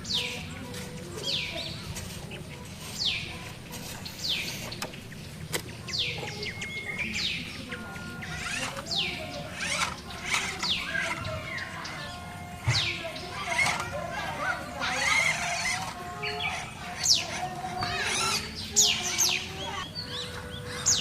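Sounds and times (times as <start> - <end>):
bird chirping: 0.0 - 21.0.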